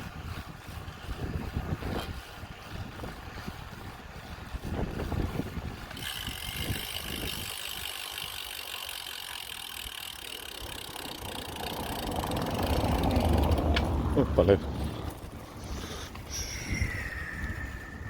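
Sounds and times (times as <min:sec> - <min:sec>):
bicycle freewheel ticking: 0:00.1 - 0:13.9, 0:16.2 - 0:18.0
low rumble: 0:16.3 - 0:18.0.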